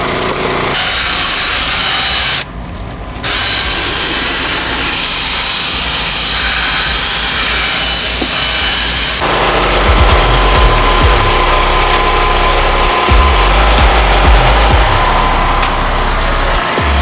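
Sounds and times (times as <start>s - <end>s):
power cleaning tool hissing rush: 0.7s - 2.5s, 3.2s - 17.0s
low engine hum: 9.2s - 17.0s.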